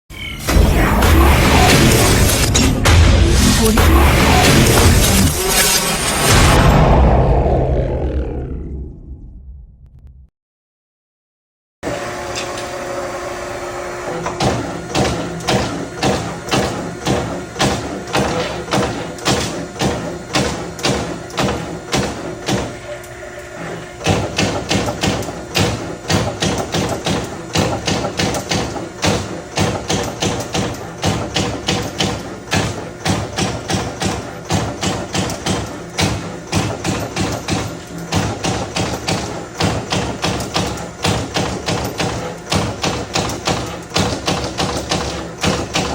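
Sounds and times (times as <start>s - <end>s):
machine drive hum: 0.1s - 10.2s, 11.9s - 45.9s
punch press strokes on sheet metal: 0.2s - 6.8s.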